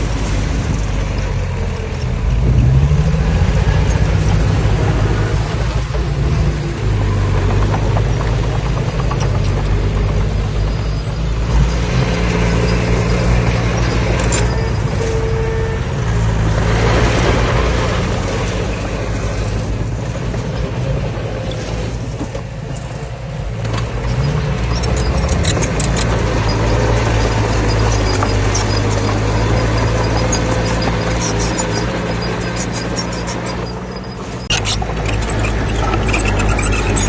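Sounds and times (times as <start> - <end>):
heavy diesel engine running: 0.0 - 37.0
short clicks and rattles: 7.0 - 11.3, 23.6 - 37.0.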